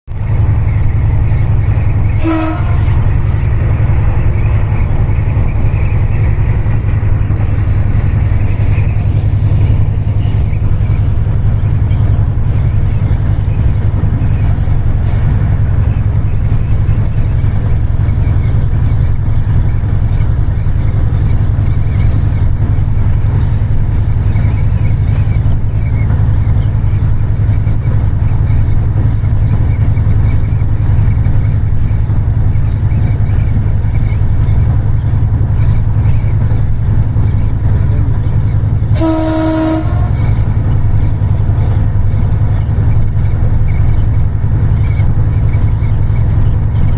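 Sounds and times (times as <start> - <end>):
train rumbling: 0.0 - 46.9
train horn blast: 2.2 - 3.5, 38.9 - 40.4.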